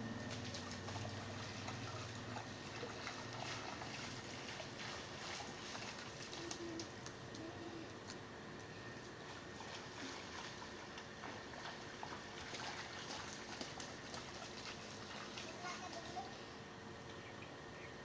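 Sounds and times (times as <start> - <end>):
steady rain falling: 0.0 - 4.8.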